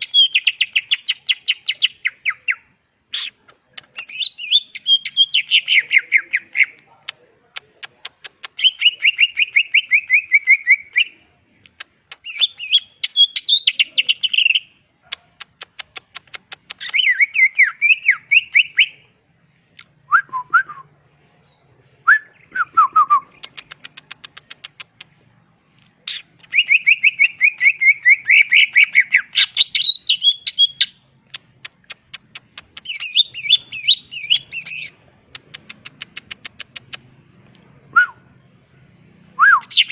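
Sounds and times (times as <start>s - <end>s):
songbird trills and whistles: 0.0s - 6.8s, 12.2s - 14.7s, 16.6s - 19.0s, 26.1s - 31.0s, 32.8s - 35.0s, 39.4s - 39.9s.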